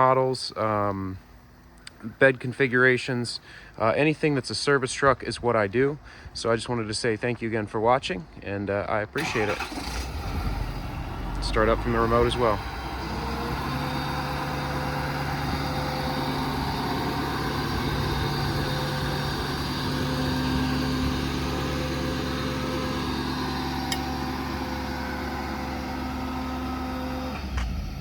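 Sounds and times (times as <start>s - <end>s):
diesel truck engine idling: 9.2s - 28.0s.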